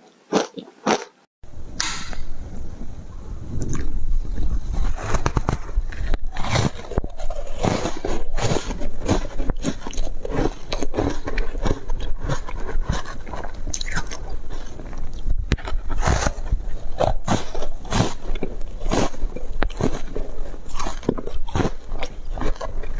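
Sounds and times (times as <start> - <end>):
crunchy ice chewing: 5.1 - 22.9.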